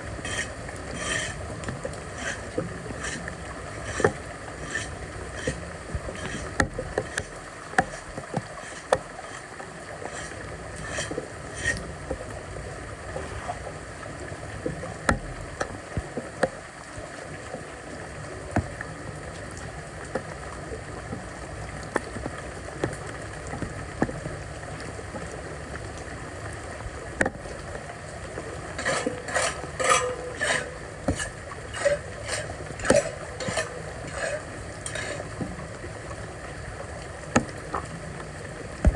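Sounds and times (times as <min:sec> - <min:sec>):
floodwater sloshing and splashing: 0:00.0 - 0:38.9
debris knocking and scraping: 0:28.8 - 0:35.5.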